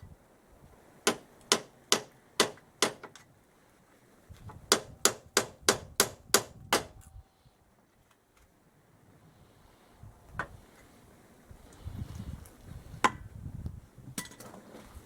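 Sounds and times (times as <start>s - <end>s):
hammer striking metal: 1.1s - 3.0s.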